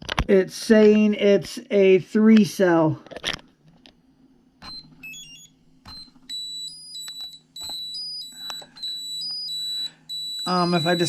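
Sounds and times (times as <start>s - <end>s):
high-pitched warbling alarm: 4.6s - 11.0s
short electronic beeps: 4.6s - 11.0s
stepped tones: 4.6s - 11.0s.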